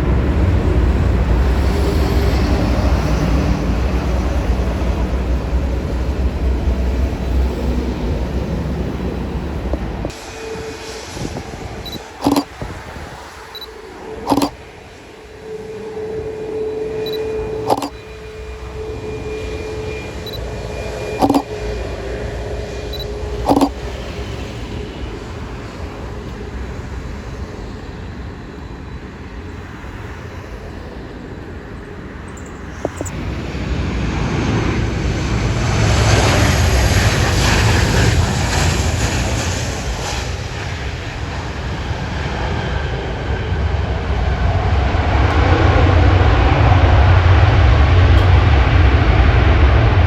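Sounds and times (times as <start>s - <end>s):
jet engines rushing: 0.0s - 50.0s.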